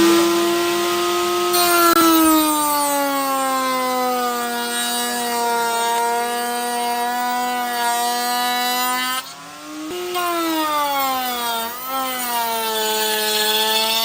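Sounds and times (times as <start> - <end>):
power tool cutting wood: 0.0 - 14.0.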